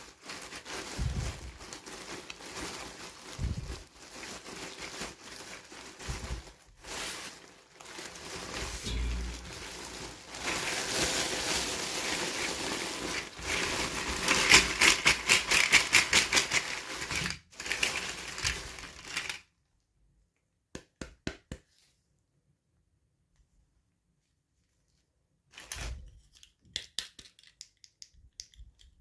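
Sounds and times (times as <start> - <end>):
packaging crinkling: 0.0 - 19.4.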